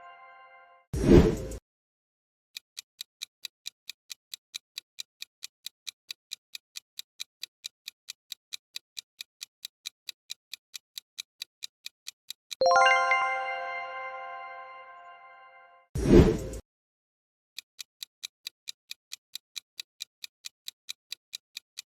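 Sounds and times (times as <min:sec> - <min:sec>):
clock ticking: 0:02.8 - 0:13.2, 0:17.6 - 0:21.9.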